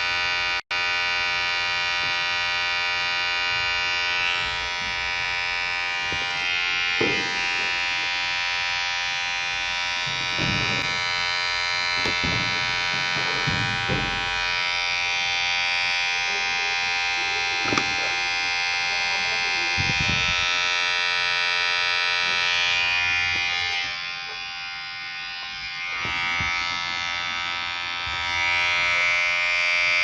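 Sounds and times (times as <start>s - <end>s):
electric hair clipper buzzing: 0.0s - 30.0s.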